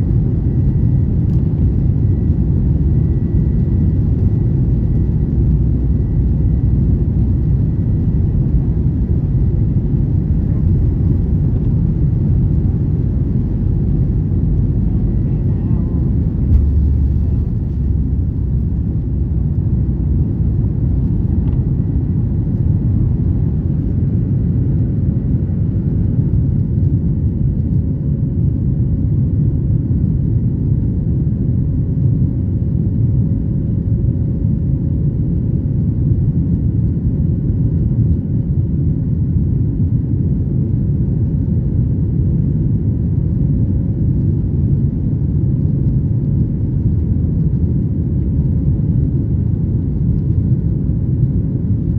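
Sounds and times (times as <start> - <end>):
faint steady hum: 0.0 - 26.4
airplane engines and airflow rumble: 0.0 - 51.9.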